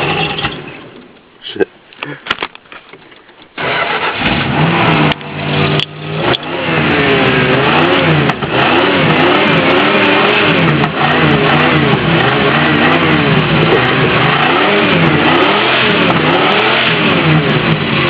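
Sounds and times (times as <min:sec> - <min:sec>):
van engine starting and revving: 0:00.0 - 0:00.8, 0:03.5 - 0:18.0.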